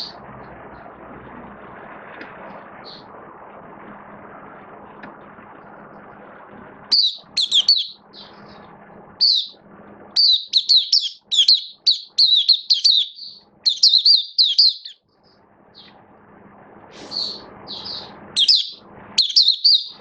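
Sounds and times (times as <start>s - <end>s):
bulbul singing whistled phrases: 6.9s - 8.4s, 9.2s - 9.6s, 10.2s - 15.0s, 17.0s - 20.0s.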